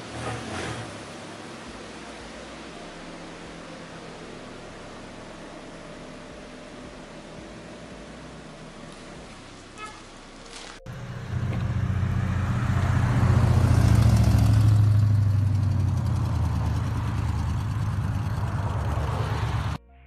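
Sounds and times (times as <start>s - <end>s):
loud deep car engine: 0.0s - 19.8s.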